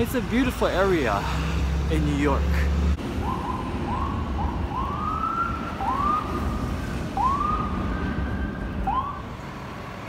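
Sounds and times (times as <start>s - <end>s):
street noise rumble: 0.0s - 10.0s
siren whooping: 3.1s - 9.3s.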